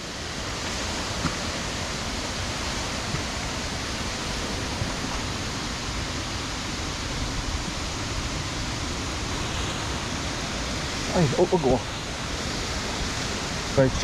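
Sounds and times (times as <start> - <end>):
fast-running stream: 0.0 - 14.0
waterfall rushing: 0.0 - 14.0.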